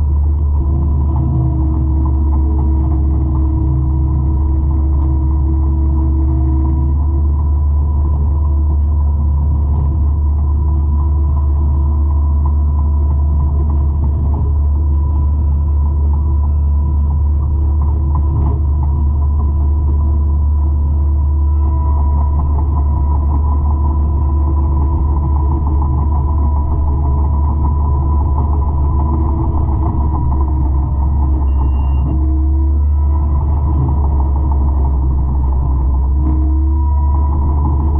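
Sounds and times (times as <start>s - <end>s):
forestry mulcher engine drone: 0.0s - 37.9s
short high tone: 31.5s - 32.2s.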